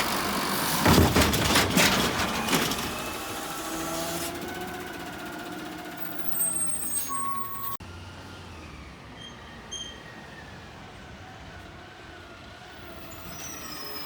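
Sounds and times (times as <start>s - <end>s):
garbage truck clattering knocks: 0.0s - 5.0s
truck engine and machinery hum: 0.0s - 14.0s.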